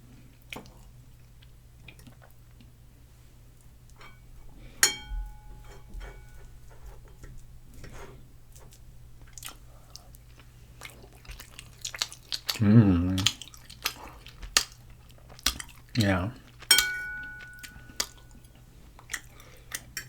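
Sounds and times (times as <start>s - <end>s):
utensil clinking on plate: 4.8s - 6.5s, 16.6s - 18.5s
chewing and mouth sounds: 8.7s - 20.0s.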